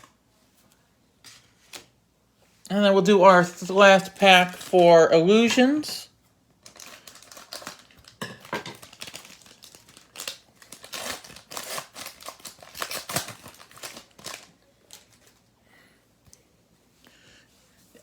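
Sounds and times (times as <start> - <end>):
wrapper tearing and crinkling: 4.0 - 4.8, 6.6 - 15.4.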